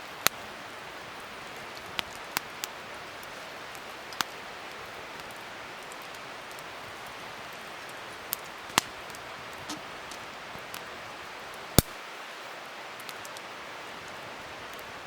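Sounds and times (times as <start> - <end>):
wood fire crackling: 0.0 - 15.0
fire popping sharply: 7.8 - 10.9.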